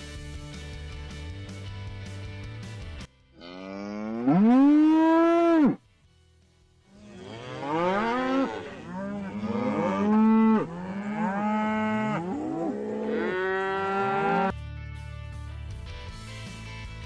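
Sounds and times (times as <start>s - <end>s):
cattle mooing: 3.4s - 5.8s, 7.0s - 14.5s.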